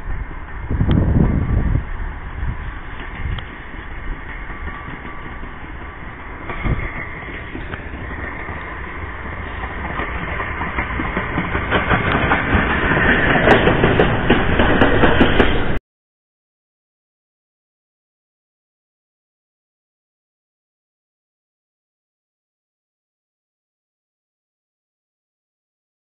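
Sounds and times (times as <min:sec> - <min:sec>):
steam locomotive running: 0:00.0 - 0:15.8
clatter of clicks and knocks: 0:10.7 - 0:15.4.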